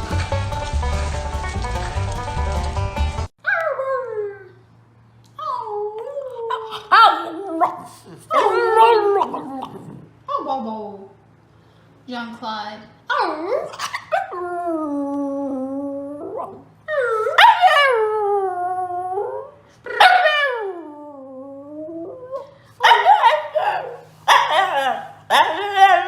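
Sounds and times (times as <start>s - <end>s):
dog yipping and whining: 5.4s - 9.9s, 13.1s - 14.6s, 16.2s - 18.2s, 20.0s - 20.8s, 22.0s - 26.0s
dog howling: 5.4s - 10.0s, 13.2s - 26.0s.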